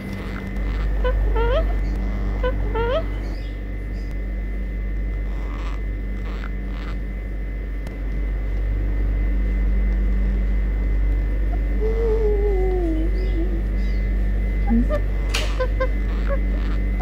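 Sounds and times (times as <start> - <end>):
mechanical hum with whine: 0.0 - 17.0
parrot falling call: 14.8 - 16.8.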